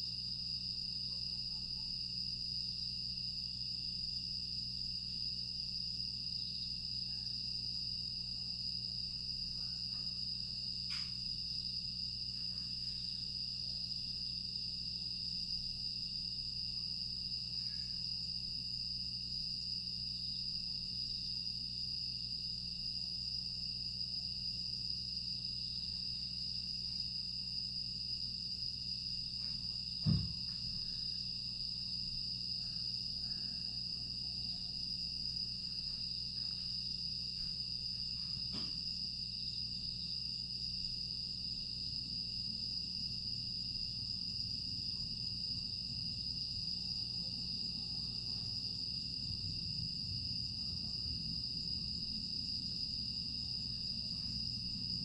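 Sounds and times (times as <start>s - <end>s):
crickets chirring: 0.0s - 55.0s
dull thump: 30.0s - 30.8s.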